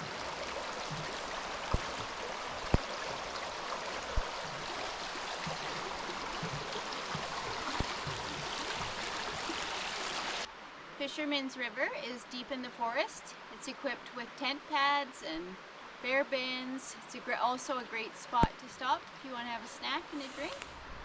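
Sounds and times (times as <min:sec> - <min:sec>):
river water rushing: 0:00.0 - 0:10.8.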